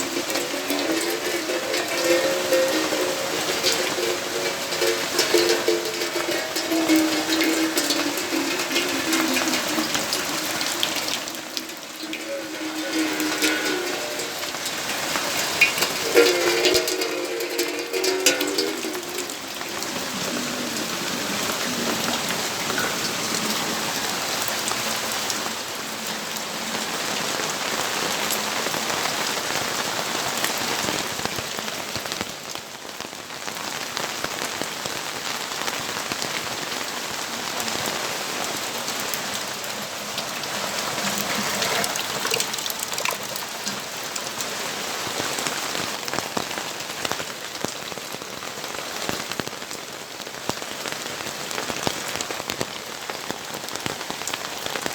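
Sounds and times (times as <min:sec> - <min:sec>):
rain pattering on surfaces: 0:00.0 - 0:54.9.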